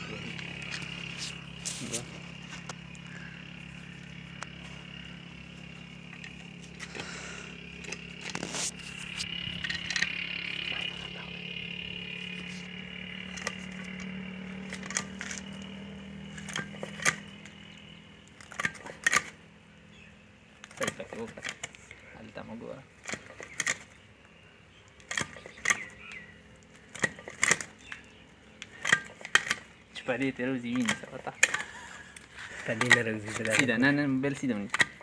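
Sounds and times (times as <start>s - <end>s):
excavator engine running: 0.0s - 35.0s
sharp clicks and knocks: 12.2s - 19.4s, 20.6s - 22.0s, 23.0s - 24.0s, 24.8s - 35.0s.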